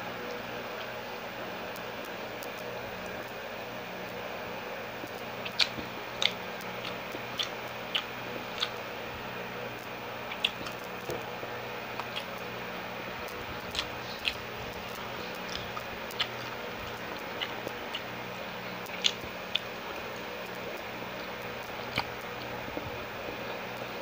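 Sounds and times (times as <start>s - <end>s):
steady background hum: 0.0s - 24.0s
wet mouth chewing: 5.4s - 8.9s, 10.2s - 11.2s, 11.9s - 12.6s, 13.3s - 20.3s, 21.1s - 23.9s.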